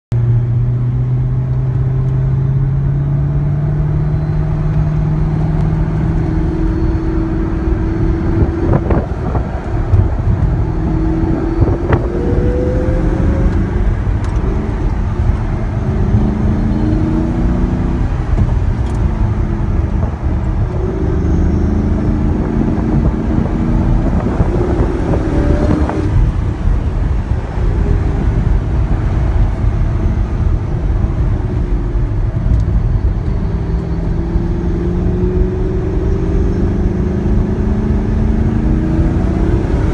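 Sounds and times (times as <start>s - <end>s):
car engine accelerating: 0.1s - 39.9s
tyre and road noise: 0.1s - 39.9s.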